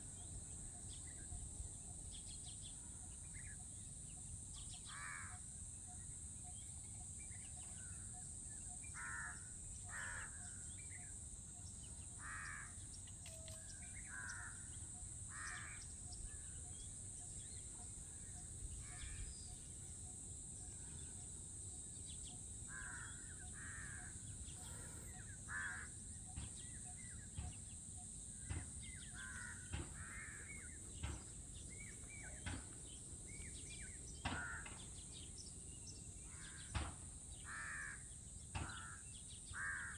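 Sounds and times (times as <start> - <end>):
crows cawing: 4.9 - 5.4, 9.0 - 10.6, 12.1 - 12.8, 14.0 - 14.7, 15.3 - 15.9, 22.7 - 26.0, 29.1 - 31.2, 34.2 - 35.0, 36.3 - 39.9.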